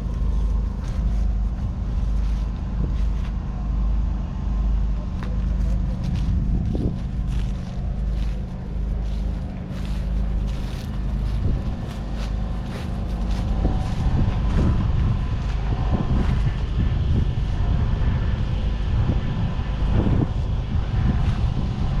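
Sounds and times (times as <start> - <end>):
diesel engine running: 0.0 - 22.0
wind buffeting microphone: 0.0 - 22.0.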